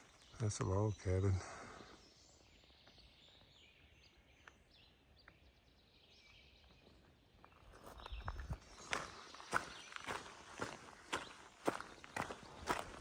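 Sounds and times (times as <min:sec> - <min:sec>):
faint bird chirps: 0:00.0 - 0:13.0
footsteps on a trail: 0:06.3 - 0:13.0.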